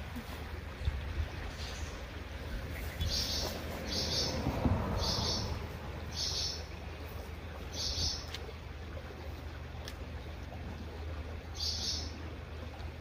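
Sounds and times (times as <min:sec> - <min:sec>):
songbird calling: 0:02.7 - 0:06.7, 0:07.6 - 0:08.4, 0:11.5 - 0:12.2.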